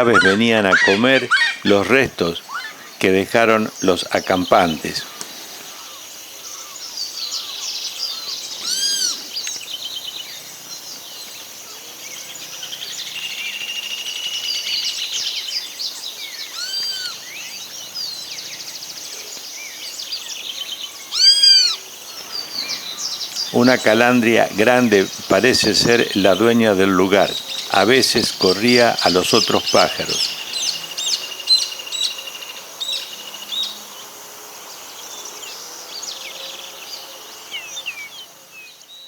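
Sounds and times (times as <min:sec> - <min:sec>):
bird trilling fast: 0:00.0 - 0:09.4, 0:16.5 - 0:17.4, 0:21.0 - 0:31.7
loud arching bird calls: 0:00.0 - 0:34.1
songbirds chorus: 0:00.0 - 0:39.0.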